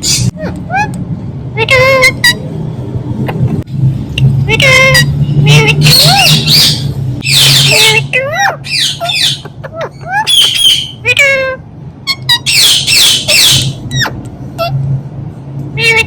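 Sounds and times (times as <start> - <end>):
parrot squawking and whistling: 4.6 - 14.8.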